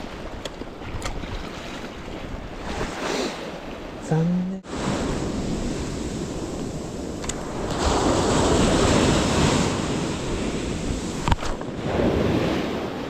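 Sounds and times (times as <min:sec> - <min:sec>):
surf breaking on beach: 0:04.7 - 0:13.0
wind buffeting microphone: 0:04.7 - 0:13.0.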